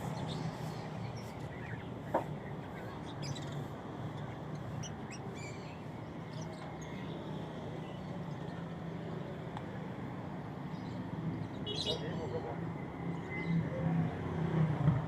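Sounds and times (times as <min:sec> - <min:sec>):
birds chirping: 0:00.0 - 0:09.4
low hum of street ambience: 0:00.0 - 0:15.0.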